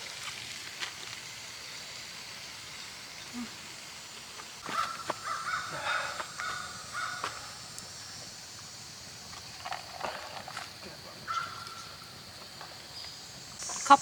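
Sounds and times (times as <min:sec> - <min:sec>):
crow cawing: 0:04.6 - 0:07.6, 0:11.3 - 0:12.0.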